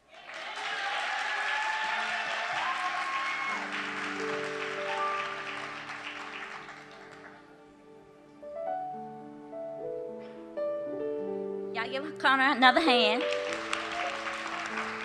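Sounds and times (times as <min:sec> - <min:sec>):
audience applauding: 0:00.0 - 0:07.6, 0:13.0 - 0:15.0.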